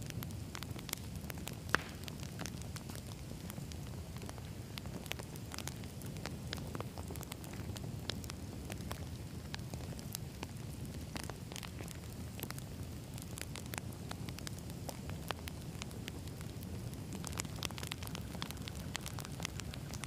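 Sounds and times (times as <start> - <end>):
campfire burning: 0.0 - 20.0
logs crackling and popping: 0.0 - 20.0.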